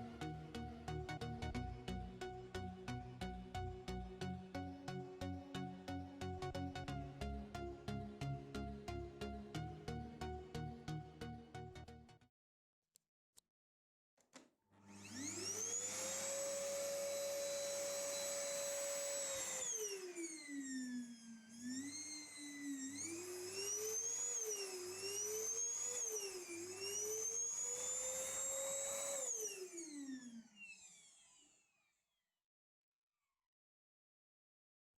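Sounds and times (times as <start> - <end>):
vacuum cleaner motor whine: 14.8 - 32.2.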